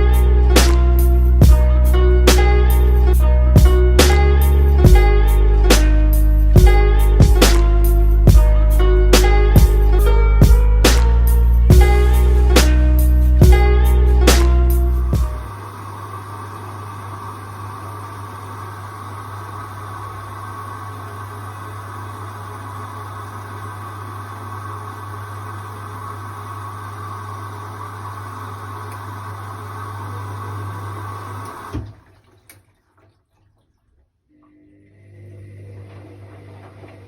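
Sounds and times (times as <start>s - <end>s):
low mains hum: 14.8s - 32.7s, 33.3s - 37.0s
washing machine filling with water: 15.2s - 37.0s.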